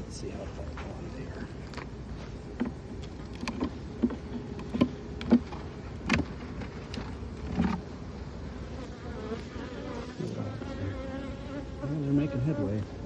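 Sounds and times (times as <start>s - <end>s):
bees buzzing: 1.9s - 13.0s
knocks and clicks on hive: 2.6s - 7.9s.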